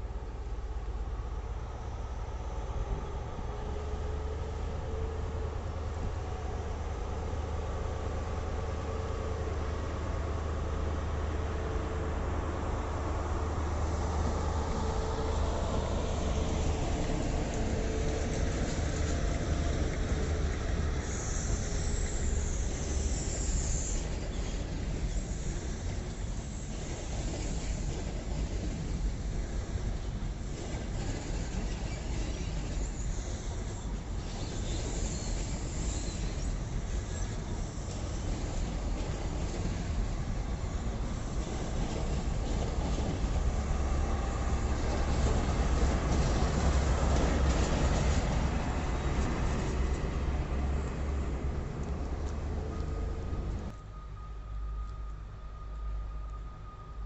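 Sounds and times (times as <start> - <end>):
diesel train engine rumbling: 0.0 - 57.0
hiss: 13.9 - 51.3.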